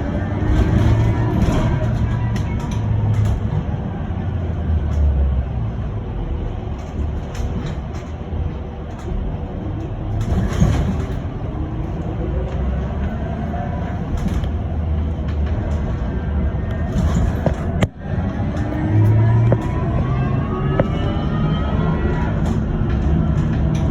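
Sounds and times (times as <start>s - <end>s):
tyre and road rumble: 0.0s - 23.9s.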